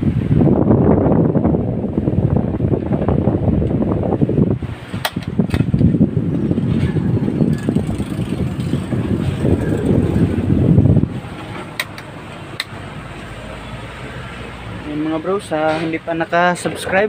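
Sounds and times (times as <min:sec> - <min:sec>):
electric fan running: 0:00.0 - 0:17.0
wind noise on microphone: 0:00.0 - 0:17.0
sharp clicks: 0:11.8 - 0:12.8.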